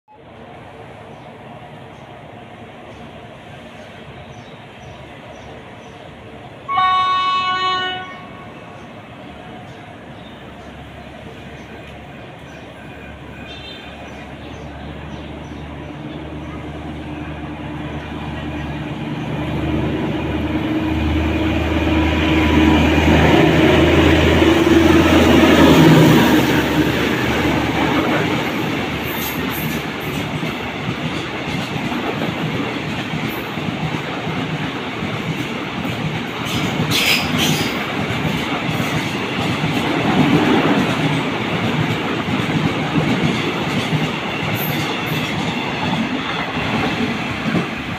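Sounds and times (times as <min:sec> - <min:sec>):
diesel locomotive engine hum: 0:00.1 - 0:47.9.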